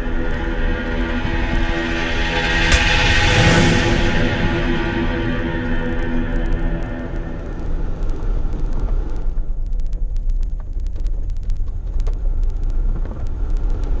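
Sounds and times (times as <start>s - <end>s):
faint clicks: 6.3s - 14.0s.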